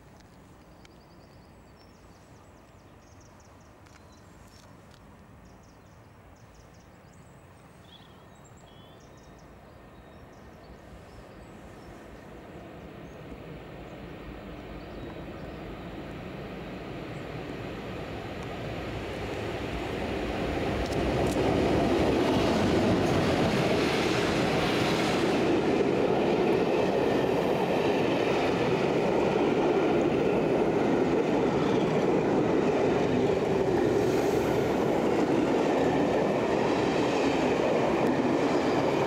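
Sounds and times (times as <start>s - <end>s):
faint birds chirping: 0.1s - 16.2s
train approaching rumble: 9.3s - 39.0s.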